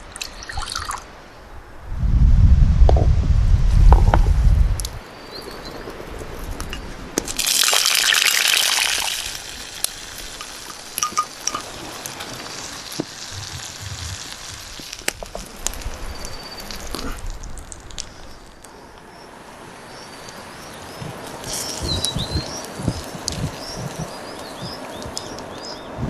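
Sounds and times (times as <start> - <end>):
faint hiss: 3.3 - 26.0
liquid gushing: 7.4 - 15.6
light clicks and clinks: 11.0 - 11.7.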